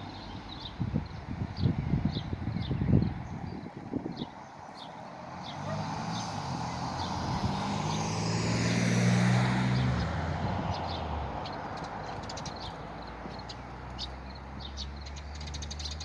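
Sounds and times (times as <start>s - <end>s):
vehicle driving past: 5.1s - 13.0s.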